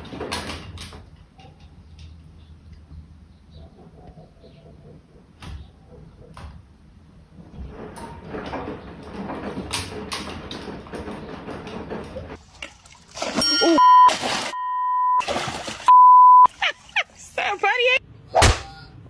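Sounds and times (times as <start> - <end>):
clattering and rustling: 5.4 - 13.5
electronic beep tone: 13.8 - 15.2.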